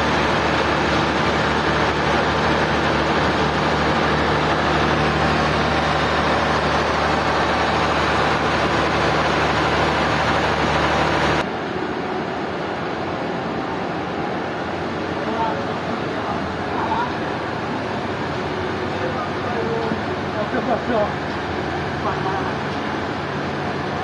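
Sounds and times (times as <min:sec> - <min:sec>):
sawmill machinery rushing: 0:00.0 - 0:11.4
low motor hum: 0:00.0 - 0:11.5.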